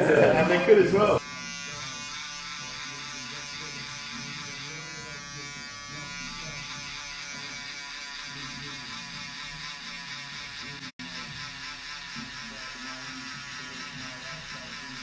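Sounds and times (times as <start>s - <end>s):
electric shaver buzzing: 0.0s - 15.0s.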